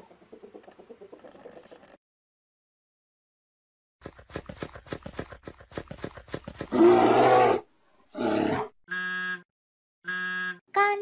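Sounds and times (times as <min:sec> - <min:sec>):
bear roaring: 0:06.7 - 0:08.7.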